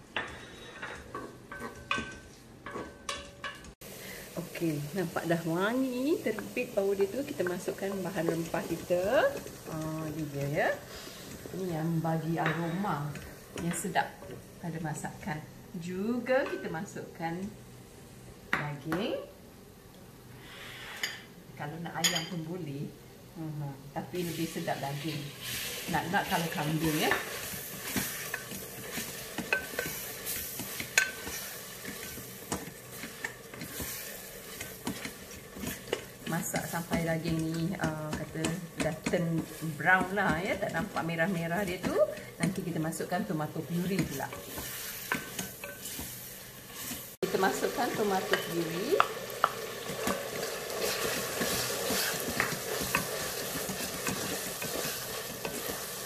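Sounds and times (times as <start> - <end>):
wooden spatula scraping pot: 24.2 - 42.6, 43.6 - 56.0
meat sizzling in oil: 24.2 - 56.0.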